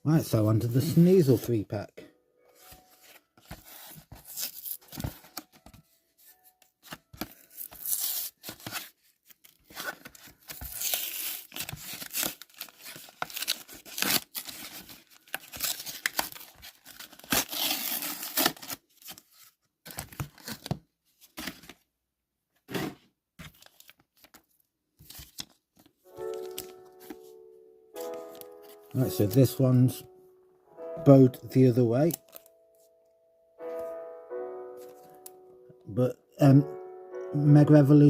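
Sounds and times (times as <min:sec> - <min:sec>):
cardboard ripping: 0:07.2 - 0:20.8.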